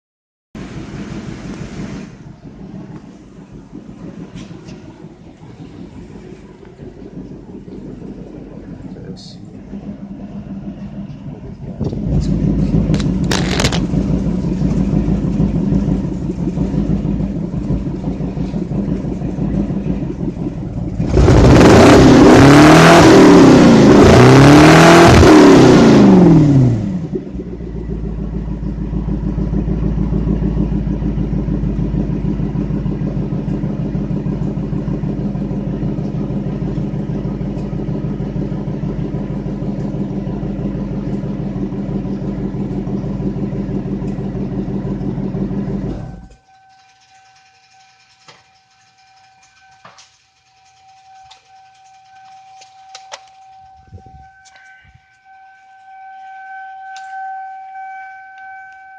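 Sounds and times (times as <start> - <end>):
car engine idling and revving: 0.6 - 58.9.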